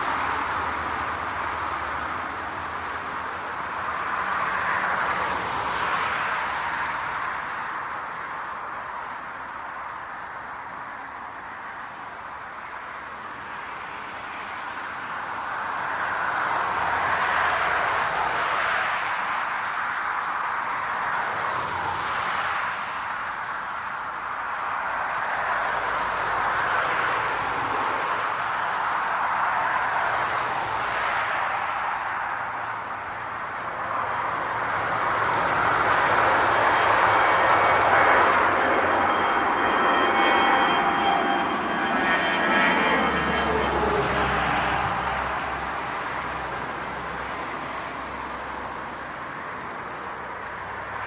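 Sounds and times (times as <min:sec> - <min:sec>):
jet engines rushing: 0:23.7 - 0:51.0.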